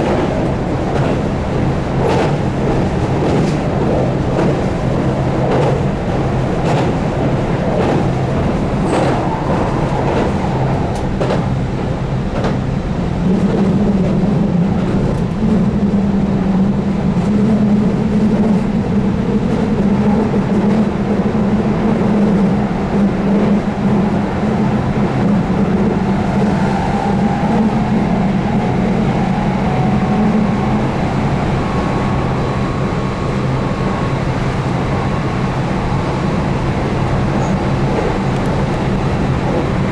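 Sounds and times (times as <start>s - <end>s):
wheel and rail noise: 0.0s - 39.9s
train traction motor hum: 20.9s - 39.2s.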